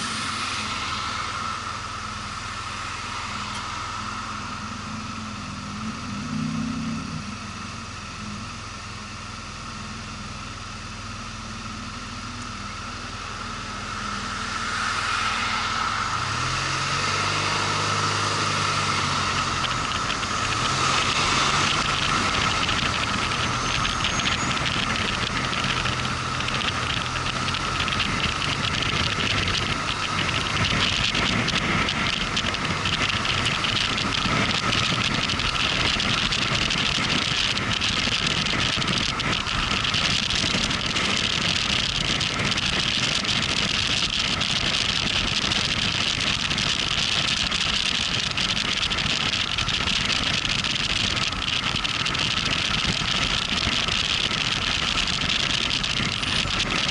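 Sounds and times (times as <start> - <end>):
motorcycle engine running: 0.0 - 56.9
road noise: 0.0 - 56.9
wind noise: 13.8 - 56.9.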